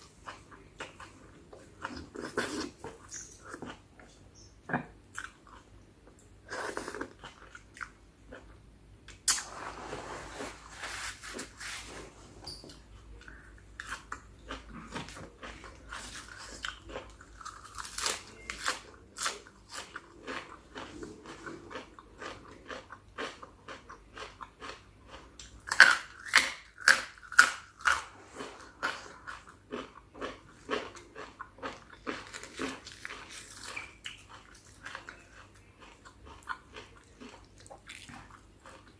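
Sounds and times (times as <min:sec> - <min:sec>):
close chewing and crunching: 0:00.0 - 0:04.2, 0:13.1 - 0:38.9.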